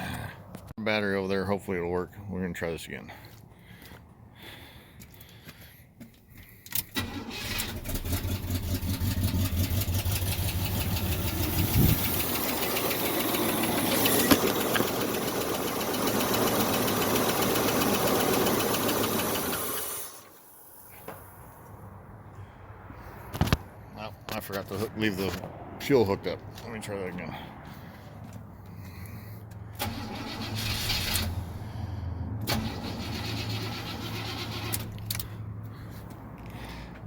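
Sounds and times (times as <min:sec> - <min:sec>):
engine cranking on starter: 0:06.7 - 0:20.4, 0:29.8 - 0:31.6, 0:32.4 - 0:35.3.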